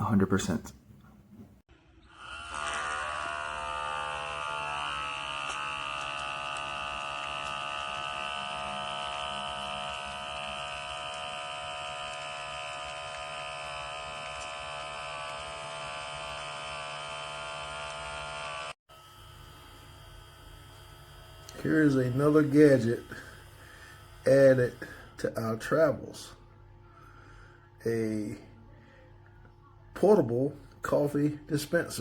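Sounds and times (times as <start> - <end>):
espresso machine pump buzzing: 1.7 - 28.2.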